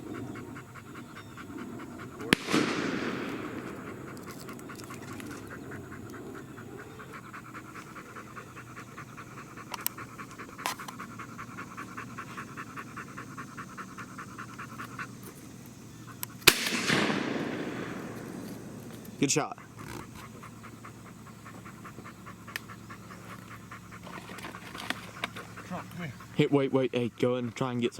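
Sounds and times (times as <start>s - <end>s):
dog panting: 0.0s - 16.4s, 17.2s - 27.9s
distant gunshots: 2.2s - 4.2s, 16.4s - 19.3s
loud shotgun shot: 2.3s - 4.1s, 16.4s - 19.1s.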